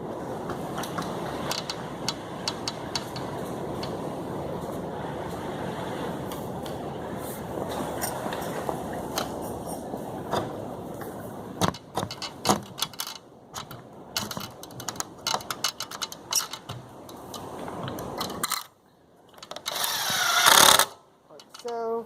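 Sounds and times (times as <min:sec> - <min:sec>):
steady rushing noise: 0:00.0 - 0:19.2
clicks and rattles of hand work: 0:00.5 - 0:04.0, 0:10.3 - 0:22.0.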